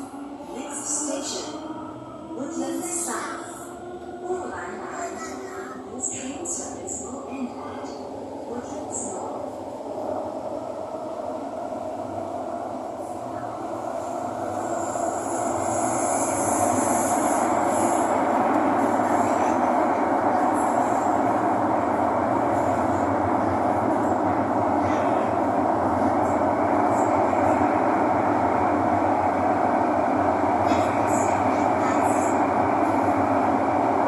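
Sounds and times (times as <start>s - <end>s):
train wheels rumbling on rail: 12.8s - 34.0s.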